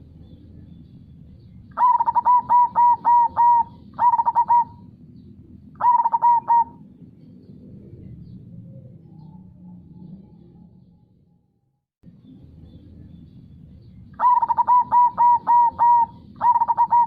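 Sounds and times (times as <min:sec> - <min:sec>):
dove cooing: 0:01.7 - 0:05.0, 0:05.7 - 0:06.9, 0:14.2 - 0:17.0.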